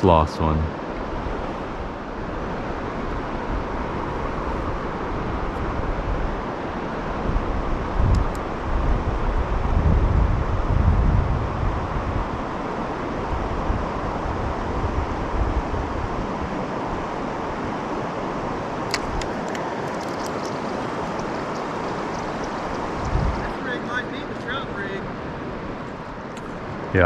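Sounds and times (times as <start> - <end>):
wind buffeting microphone: 1.0 - 17.0, 18.5 - 23.7
river water rushing: 16.4 - 23.8.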